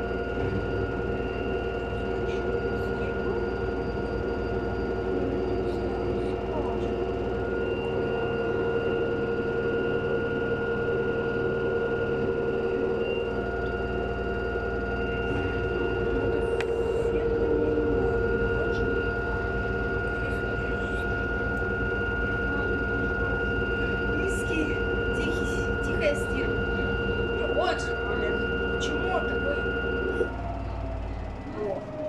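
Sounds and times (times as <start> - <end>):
low drum rumble: 0.0 - 32.0
washing machine motor whine: 0.0 - 32.0.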